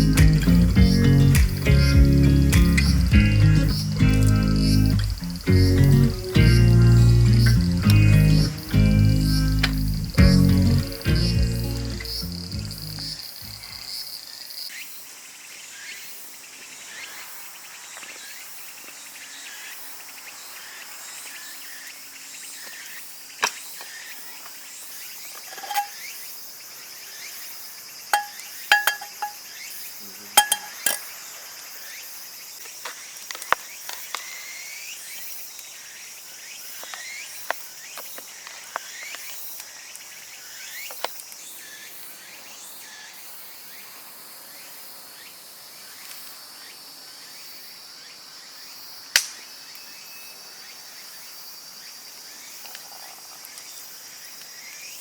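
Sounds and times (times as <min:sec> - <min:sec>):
insects chirping: 0:00.0 - 0:55.0
sharp clinks and knocks: 0:25.5 - 0:26.0, 0:28.2 - 0:29.4, 0:30.4 - 0:31.0.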